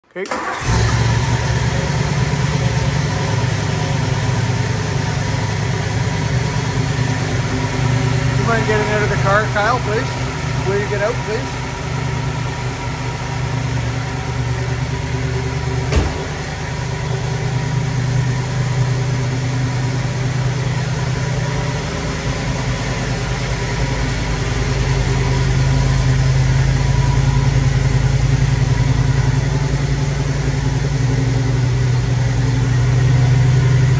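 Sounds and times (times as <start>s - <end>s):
car engine idling: 0.3s - 33.9s
sharp knock: 15.9s - 16.4s.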